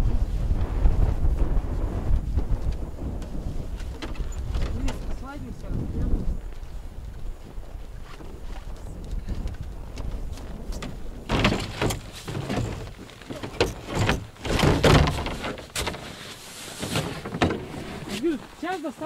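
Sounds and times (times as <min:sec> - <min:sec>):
low wind rumble: 0:00.0 - 0:19.0
knocks and scraping of gear: 0:02.6 - 0:05.3, 0:08.0 - 0:18.7.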